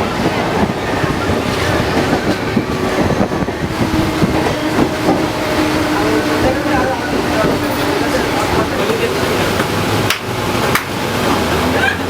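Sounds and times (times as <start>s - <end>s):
wind noise on microphone: 0.0s - 7.8s
train carriage rattling and rumbling: 0.0s - 12.0s.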